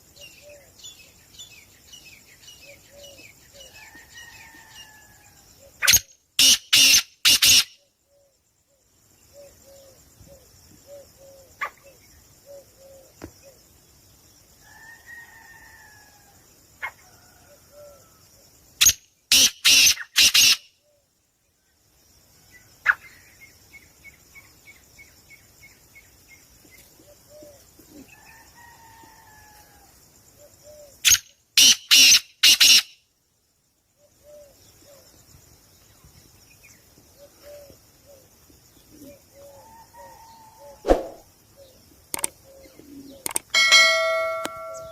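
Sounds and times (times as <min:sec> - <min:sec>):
caged birds calling: 0:00.0 - 0:08.3, 0:09.3 - 0:13.6, 0:18.8 - 0:21.0, 0:22.8 - 0:29.4, 0:30.3 - 0:33.0, 0:36.0 - 0:44.9
bird trill: 0:05.7 - 0:08.3, 0:18.8 - 0:20.7, 0:30.7 - 0:33.0, 0:39.4 - 0:44.9.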